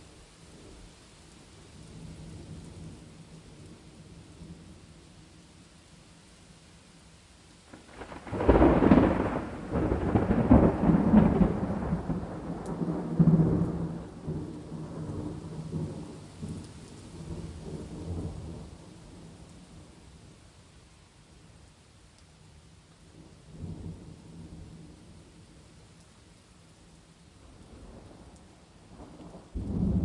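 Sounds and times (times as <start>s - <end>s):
faint steady rain: 0.0s - 30.0s
thunderclap rolling: 7.7s - 16.5s, 28.9s - 30.0s.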